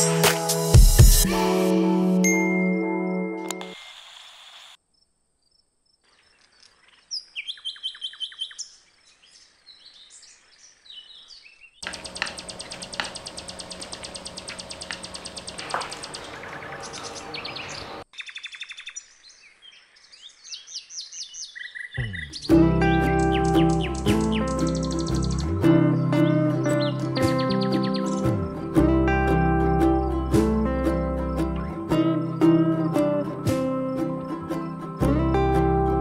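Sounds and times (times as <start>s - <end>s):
birds chirping: 6.1s - 28.7s.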